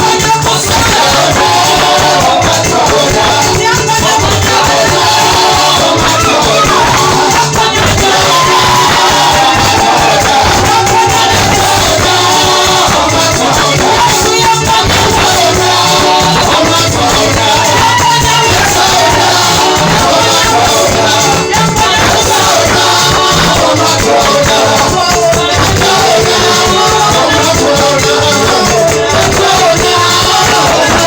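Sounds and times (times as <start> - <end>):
band with steady beat: 0.0 - 31.0
voices singing praise music: 0.0 - 31.0.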